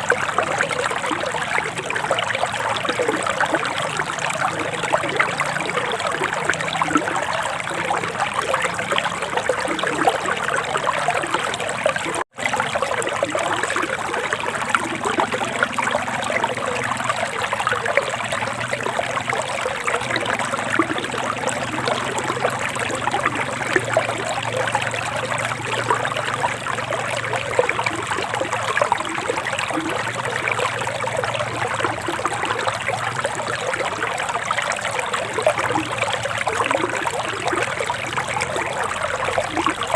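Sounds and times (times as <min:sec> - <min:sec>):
river water babbling over stones: 0:00.0 - 0:39.9.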